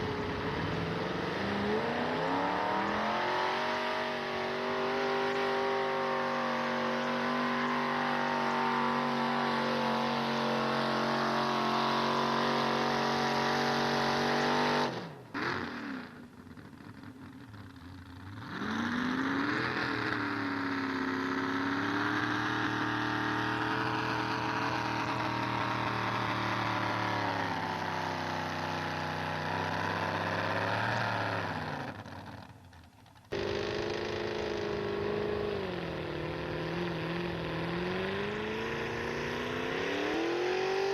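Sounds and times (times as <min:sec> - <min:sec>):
engine revving with wavering pitch: 0:00.0 - 0:16.3, 0:18.3 - 0:32.5, 0:33.3 - 0:40.9
truck engine at high revs: 0:00.0 - 0:40.9.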